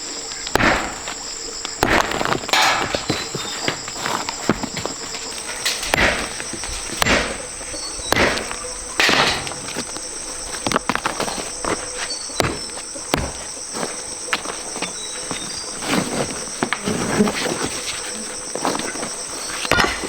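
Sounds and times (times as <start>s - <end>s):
high-pitched insect chorus: 0.0s - 20.0s
light scattered knocks: 0.1s - 20.0s
heavy strikes: 0.5s - 1.2s, 4.6s - 9.9s.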